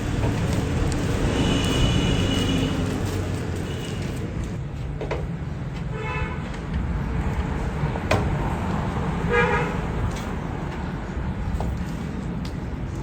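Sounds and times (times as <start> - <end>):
vehicle horn toots: 1.2 - 3.0, 9.3 - 9.8.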